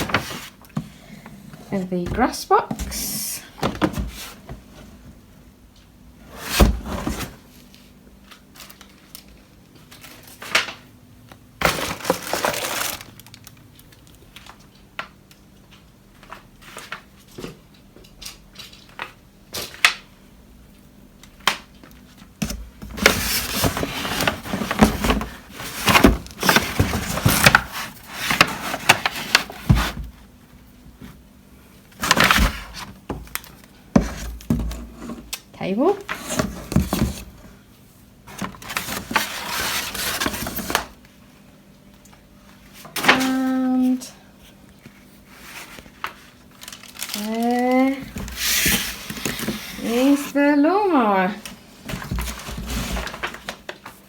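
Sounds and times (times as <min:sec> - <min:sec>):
packaging crinkling and rustling: 0:06.5 - 0:20.0, 0:21.2 - 0:30.2, 0:31.9 - 0:35.4, 0:38.2 - 0:41.2, 0:44.6 - 0:50.4, 0:51.4 - 0:54.0.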